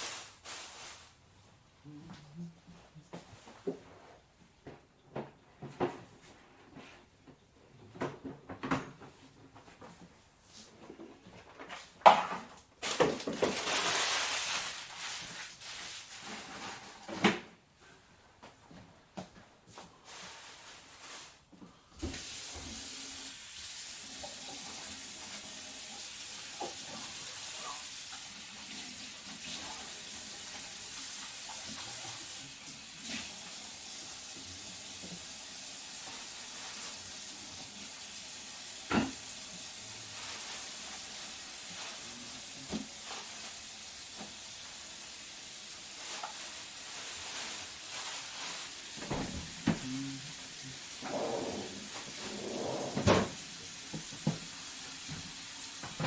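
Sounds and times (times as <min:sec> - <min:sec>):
tap water running into sink: 0:22.0 - 0:40.0, 0:53.0 - 0:56.0.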